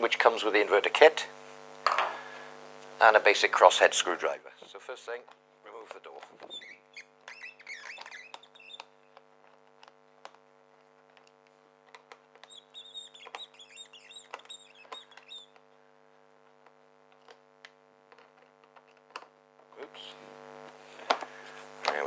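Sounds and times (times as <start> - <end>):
high squeaks: 6.4 - 9.2, 12.4 - 15.6.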